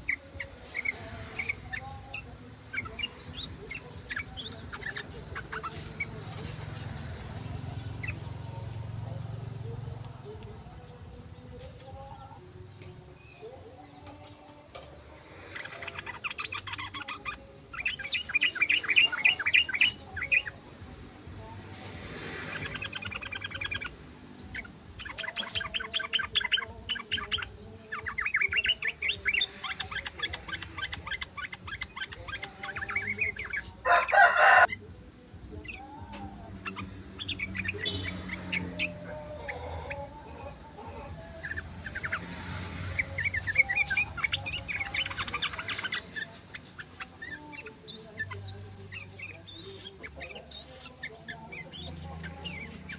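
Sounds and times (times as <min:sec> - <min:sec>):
birds singing chattering phrases: 0:00.0 - 0:52.9.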